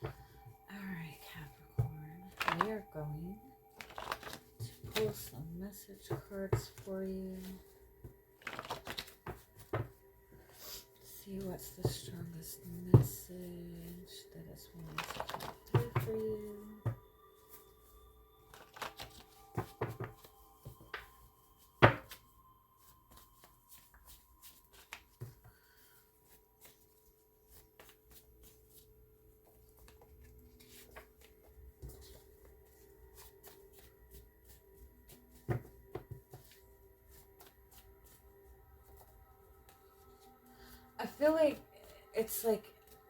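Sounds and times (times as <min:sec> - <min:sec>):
cards being shuffled: 0:02.3 - 0:02.7, 0:03.7 - 0:05.3, 0:08.4 - 0:09.9, 0:14.8 - 0:16.2, 0:18.5 - 0:25.5, 0:26.2 - 0:38.2.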